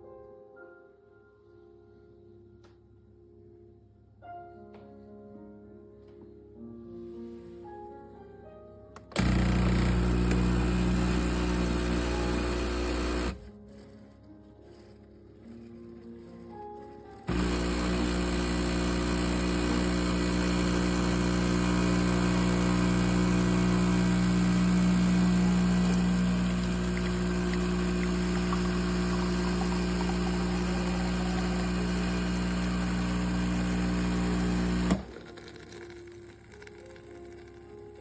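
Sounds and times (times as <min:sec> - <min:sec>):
espresso machine humming: 0:09.2 - 0:13.4, 0:17.3 - 0:35.9.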